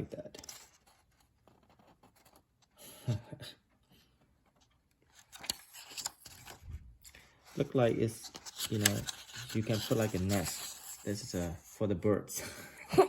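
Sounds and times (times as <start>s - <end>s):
paper and packaging rustling: 0.0s - 2.8s, 4.3s - 11.7s.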